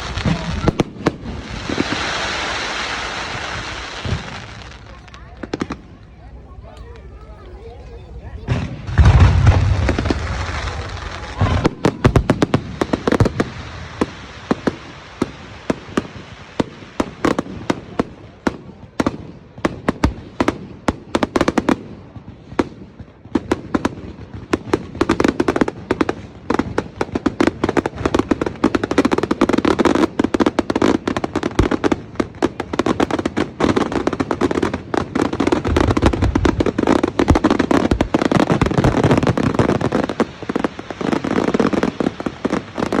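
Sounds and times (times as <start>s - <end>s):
deep firework bang: 0.0s - 4.7s, 8.4s - 14.2s
fireworks crackling and popping: 0.0s - 43.0s.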